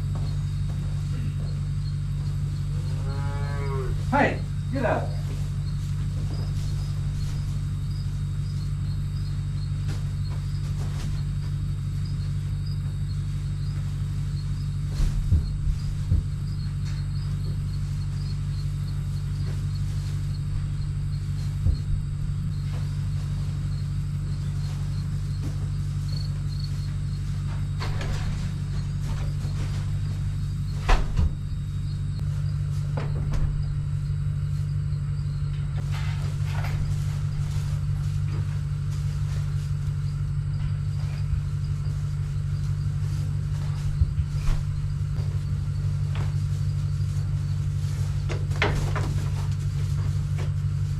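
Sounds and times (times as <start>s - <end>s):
vehicle engine idling: 0.0s - 3.2s, 3.9s - 50.9s
insects chirping: 0.0s - 50.9s
knocks and thumps: 14.7s - 18.4s, 19.3s - 39.6s, 42.8s - 46.8s, 48.2s - 50.6s.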